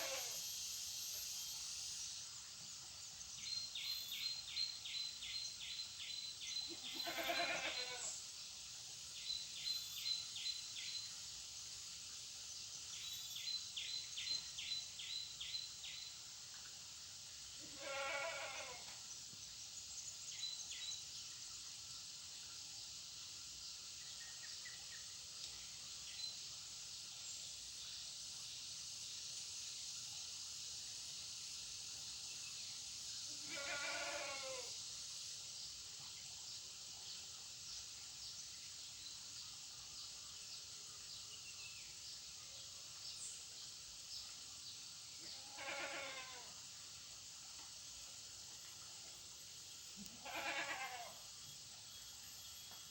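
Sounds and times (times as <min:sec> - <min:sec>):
steady high hiss: 0:00.0 - 0:52.9
goat bleating: 0:06.8 - 0:08.1, 0:17.7 - 0:18.8, 0:33.5 - 0:34.6, 0:45.5 - 0:46.4, 0:50.0 - 0:51.2.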